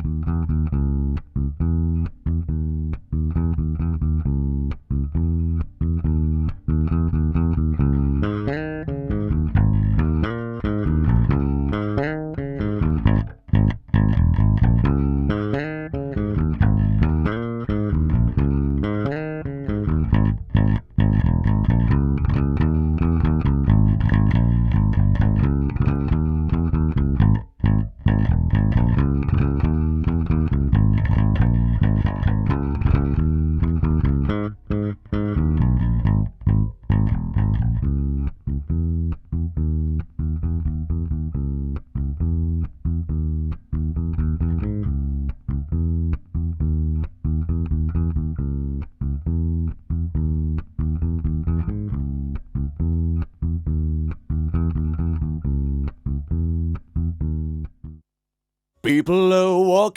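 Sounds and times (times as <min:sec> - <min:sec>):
solo electric bass guitar: 0:00.0 - 0:58.0.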